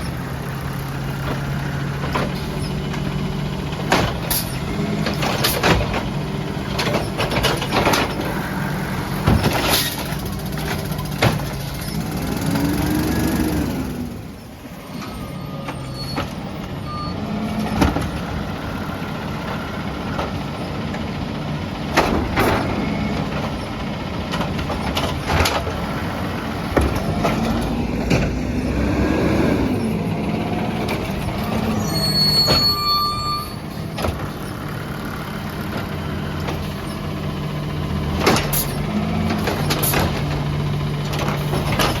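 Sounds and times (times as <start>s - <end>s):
truck engine revving: 0.0s - 15.2s, 15.8s - 42.0s.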